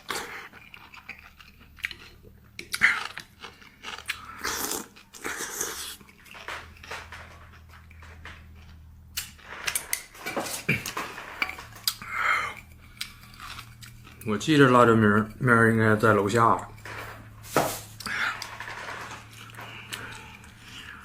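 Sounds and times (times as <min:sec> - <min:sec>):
person chewing food: 0:00.0 - 0:15.5, 0:16.6 - 0:21.0.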